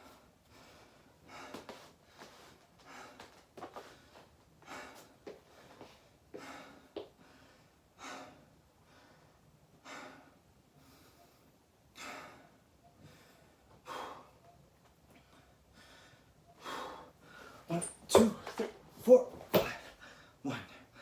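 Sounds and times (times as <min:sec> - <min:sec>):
man breathing heavily: 0:00.0 - 0:18.8, 0:19.6 - 0:21.0.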